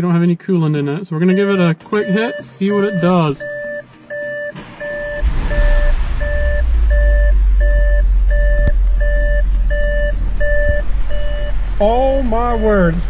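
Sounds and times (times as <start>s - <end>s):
two-tone warning chime beeping: 1.3s - 11.6s
car engine starting and running: 1.3s - 13.0s.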